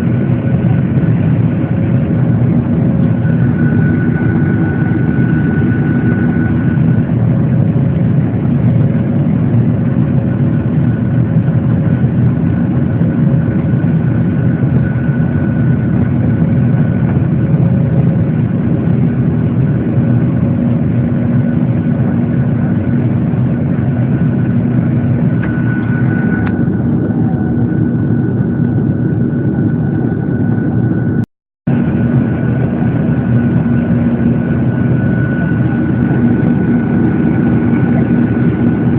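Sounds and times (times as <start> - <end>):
jet engine drone in cabin: 0.0 - 38.9
thin high whine: 2.6 - 7.2, 23.8 - 31.2.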